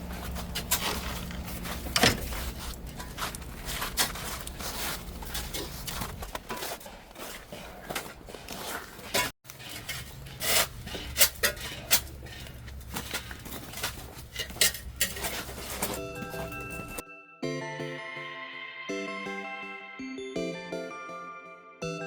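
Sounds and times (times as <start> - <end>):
shovel scraping ice: 2.4 - 16.0
music: 15.9 - 22.0.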